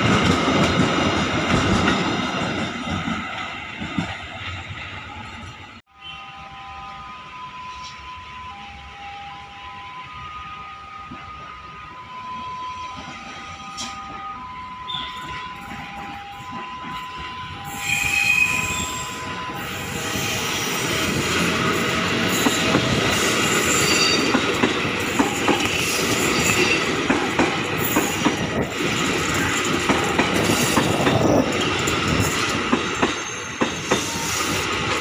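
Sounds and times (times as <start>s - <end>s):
high wheel squeals: 17.6s - 24.4s, 30.4s - 34.7s
train wheels clattering over rail joints: 22.0s - 35.0s.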